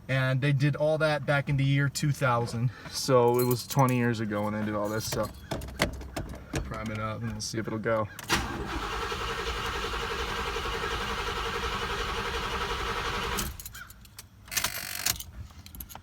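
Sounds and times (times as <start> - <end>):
car engine cranking: 8.2 - 15.4.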